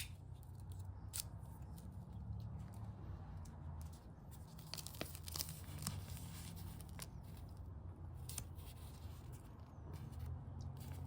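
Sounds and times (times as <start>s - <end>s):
wrapper tearing and crinkling: 4.6s - 6.2s.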